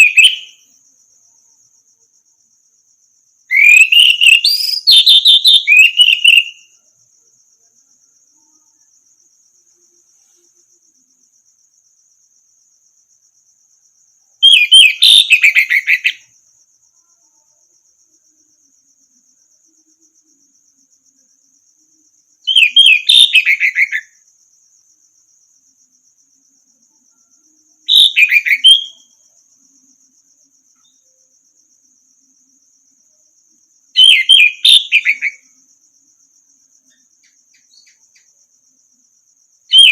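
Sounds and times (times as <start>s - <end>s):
thrush singing whistled phrases: 0.0s - 0.6s, 3.5s - 6.7s, 14.4s - 16.2s, 22.5s - 24.1s, 27.9s - 29.1s, 34.0s - 35.3s
insect high trill: 0.0s - 39.9s.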